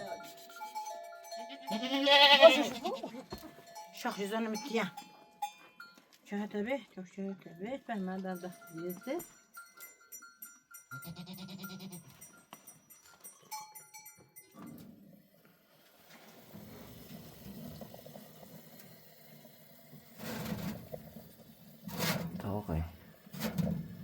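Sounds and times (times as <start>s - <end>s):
livestock bleating: 1.4s - 3.2s, 11.0s - 12.1s.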